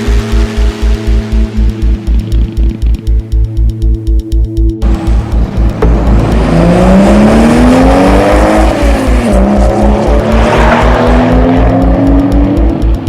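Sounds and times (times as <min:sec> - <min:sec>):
electronic music with steady beat: 0:00.0 - 0:13.0
cartoon car engine revving: 0:04.8 - 0:13.0.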